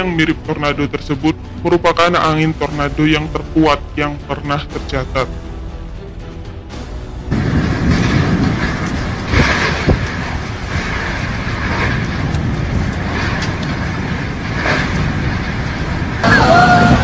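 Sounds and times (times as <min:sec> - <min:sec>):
storm wind buffeting microphone: 0:07.1 - 0:17.0.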